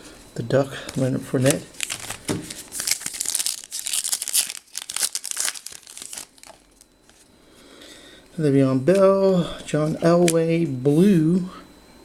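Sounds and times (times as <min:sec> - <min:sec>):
plastic wrapper crinkling and tearing: 0:00.9 - 0:07.2.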